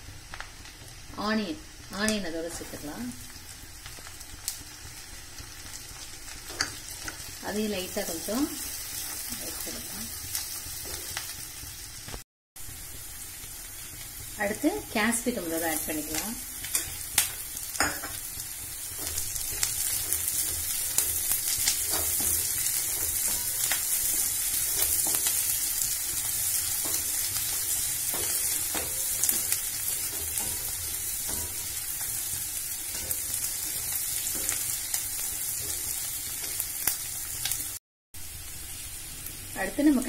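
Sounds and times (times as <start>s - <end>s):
vegetables sizzling in butter: 0.0s - 40.0s
spatula scraping and tapping pan: 18.9s - 37.6s.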